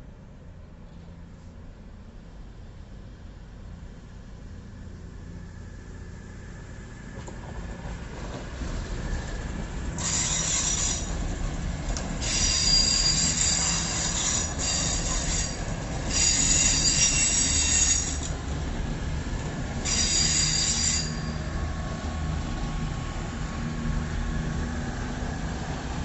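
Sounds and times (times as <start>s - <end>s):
train rumbling: 0.0s - 26.0s
train wheels squealing: 8.1s - 11.4s, 12.2s - 18.4s, 19.8s - 21.6s.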